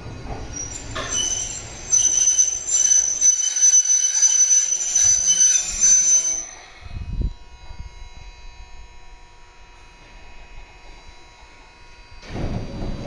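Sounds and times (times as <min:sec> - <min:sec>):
train wheels squealing on rails: 0:00.2 - 0:06.8.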